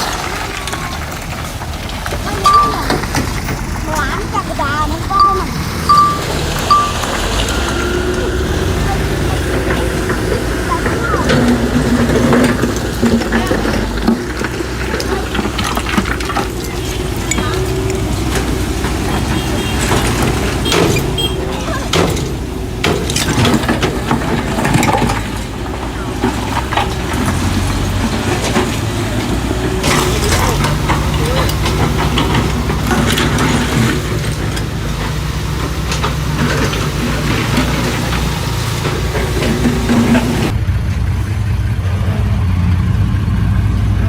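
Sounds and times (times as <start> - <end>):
knocks and clatter: 0.0 - 8.1, 9.1 - 40.6
diesel machinery engine running: 0.0 - 44.0.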